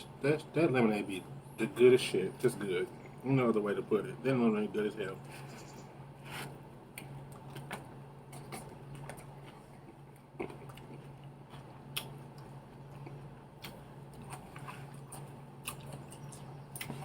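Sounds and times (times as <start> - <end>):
steady low hum: 0.0 - 17.0
person chewing food: 6.9 - 17.0.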